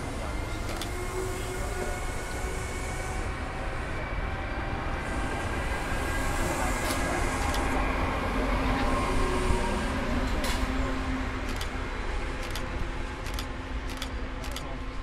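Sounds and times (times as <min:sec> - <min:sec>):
train rumbling past: 0:00.0 - 0:15.0
sharp clicks: 0:11.5 - 0:11.8, 0:12.4 - 0:14.7.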